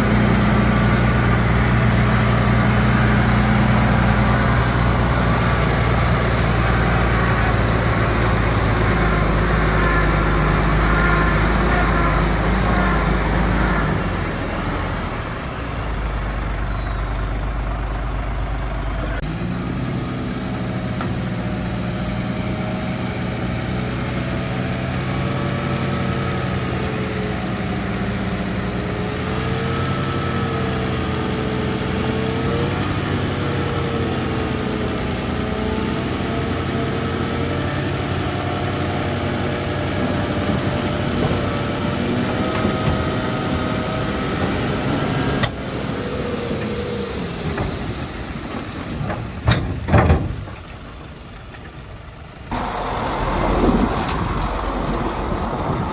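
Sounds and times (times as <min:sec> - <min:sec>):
whining tone: 0:00.0 - 0:22.3, 0:52.5 - 0:55.9
diesel engine of heavy machinery: 0:00.0 - 0:55.9.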